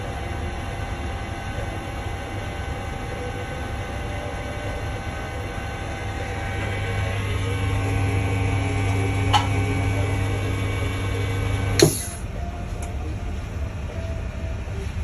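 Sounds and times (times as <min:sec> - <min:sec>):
vacuum pump humming: 0:00.0 - 0:12.4
machine clunk: 0:11.8 - 0:12.2.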